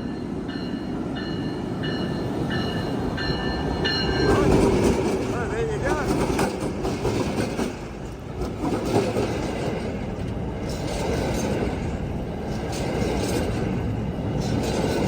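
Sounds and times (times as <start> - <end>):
steel wheels rumbling on rails: 0.0 - 15.0.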